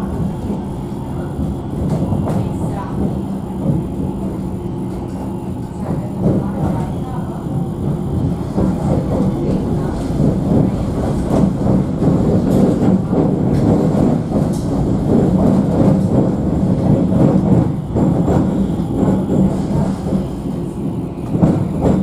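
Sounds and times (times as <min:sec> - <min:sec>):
tram wheels rumbling on rails: 0:00.0 - 0:22.0.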